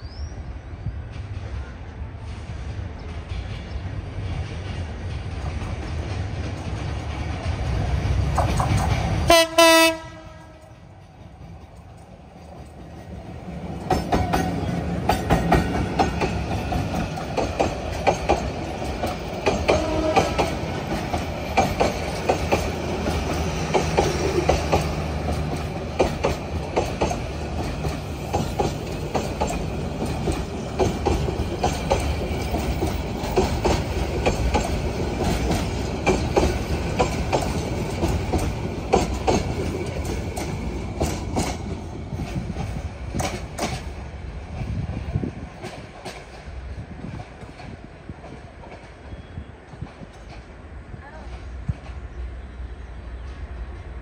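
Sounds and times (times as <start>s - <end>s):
train rumble: 0.0s - 54.0s
train wheel clicks over rail joints: 4.7s - 9.2s, 13.8s - 44.0s.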